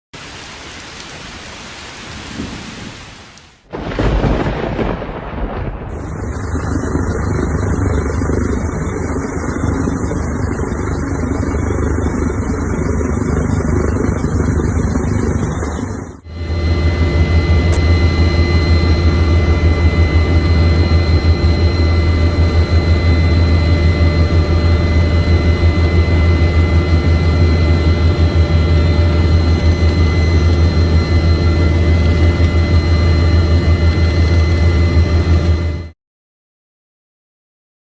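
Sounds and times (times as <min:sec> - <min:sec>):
rain and wind rumbling: 0:00.2 - 0:16.0
loud low drone: 0:03.7 - 0:36.0.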